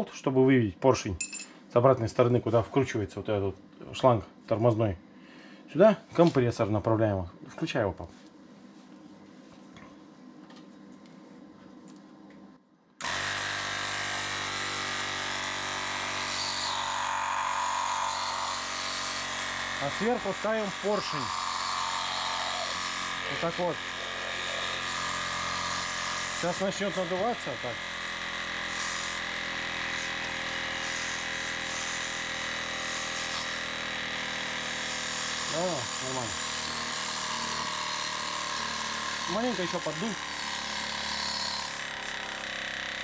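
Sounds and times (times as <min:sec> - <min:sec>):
electric air compressor running: 0:13.0 - 0:43.0.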